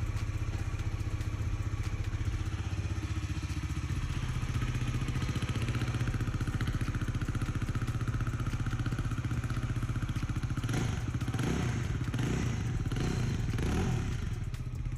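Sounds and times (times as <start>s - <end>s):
engine throttle blips: 0.0s - 14.9s
motorcycle engine idling: 0.0s - 14.9s.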